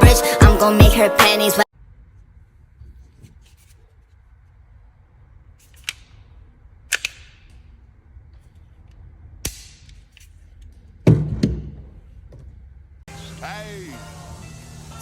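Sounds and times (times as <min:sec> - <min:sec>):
sharp crack: 0:05.6 - 0:07.8, 0:09.4 - 0:10.4
sharp clicks: 0:06.9 - 0:07.7.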